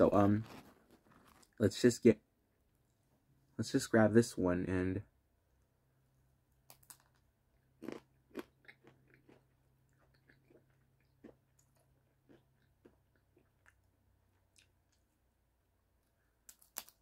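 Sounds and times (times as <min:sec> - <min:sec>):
crunchy biting and chewing: 0:06.7 - 0:13.9.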